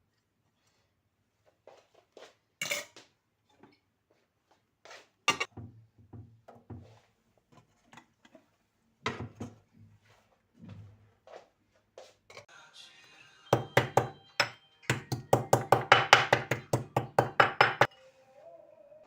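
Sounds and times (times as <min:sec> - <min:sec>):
dishes clattering: 0:02.6 - 0:03.0, 0:05.3 - 0:05.6
dishes and cutlery clinking: 0:02.6 - 0:03.8, 0:05.3 - 0:05.5.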